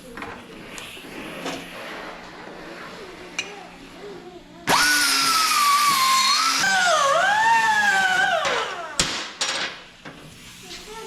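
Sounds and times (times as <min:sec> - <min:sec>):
power grinder whining on steel: 0:04.7 - 0:08.9.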